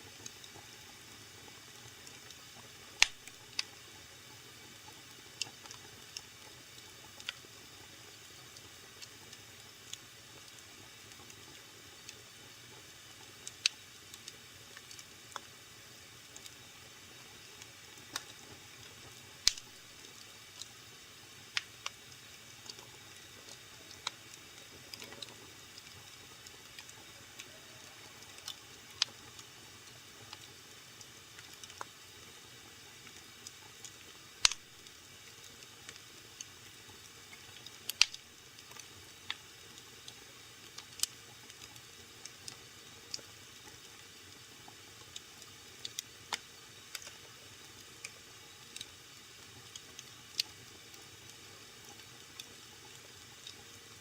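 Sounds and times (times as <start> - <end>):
wood fire popping and crackling: 1.4 - 3.8, 8.4 - 15.6, 16.3 - 54.0.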